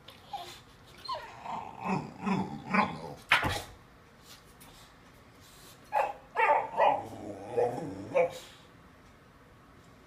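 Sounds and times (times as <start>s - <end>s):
puppy whining and grumbling: 0.2s - 3.3s, 6.4s - 8.5s
puppy barking: 5.9s - 7.1s.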